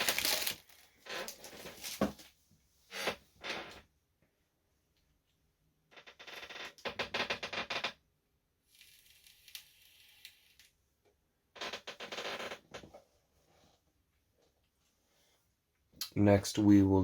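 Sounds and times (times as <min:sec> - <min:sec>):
packaging crackling and rustling: 0:00.0 - 0:02.3.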